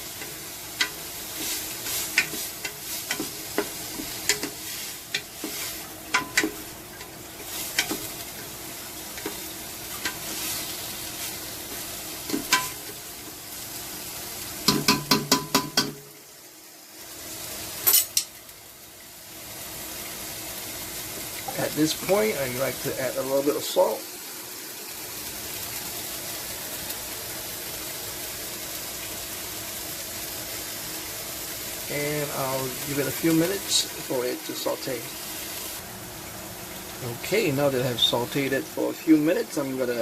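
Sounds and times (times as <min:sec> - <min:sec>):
onions sizzling in oil: 0:00.0 - 0:40.0
utensil clicking against pot: 0:00.2 - 0:01.0, 0:02.1 - 0:05.3, 0:06.1 - 0:07.1
taps on pot: 0:14.7 - 0:16.1.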